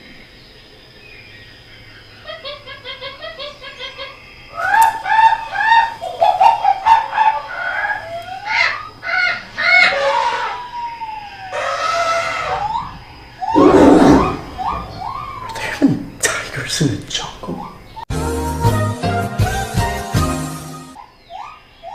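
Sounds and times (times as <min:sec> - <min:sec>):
high animal calls: 0:11.6 - 0:15.7.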